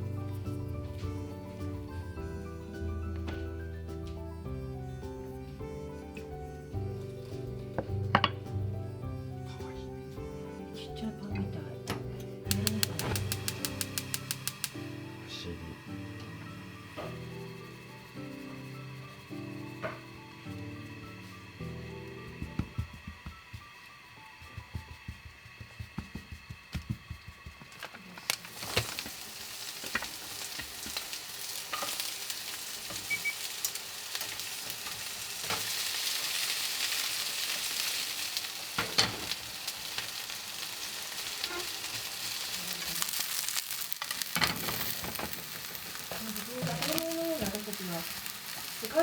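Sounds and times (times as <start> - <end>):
food sizzling in a frying pan: 0.0 - 49.0
utensil clicking against pan: 11.9 - 14.8.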